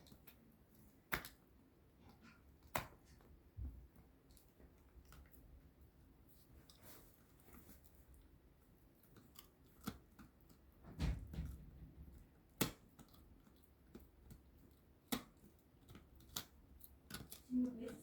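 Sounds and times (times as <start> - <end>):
puppy gnawing dog chew: 0.0 - 18.0
dull thud: 10.9 - 11.8.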